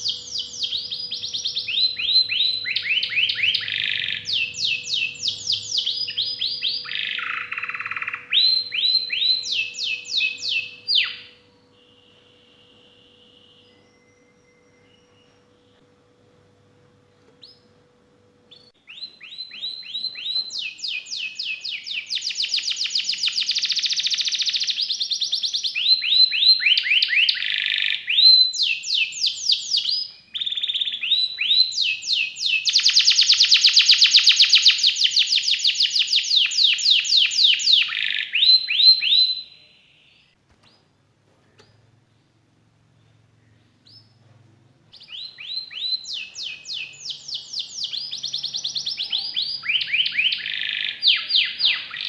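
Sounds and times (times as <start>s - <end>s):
canary singing trills: 0.0s - 15.9s, 18.5s - 40.8s, 44.9s - 52.0s
faint steady tone: 8.2s - 18.9s.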